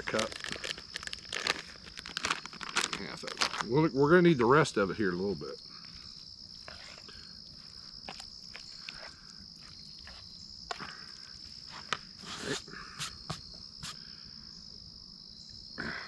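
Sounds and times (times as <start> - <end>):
insects chirring: 0.0 - 16.0
utensil stirring food in bowl: 5.8 - 11.3.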